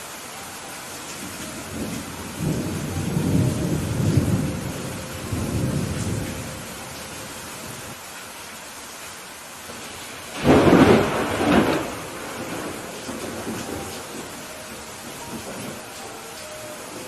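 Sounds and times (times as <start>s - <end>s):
steady rain: 0.0s - 17.0s
rolling thunder rumble: 1.2s - 8.0s, 9.7s - 16.0s.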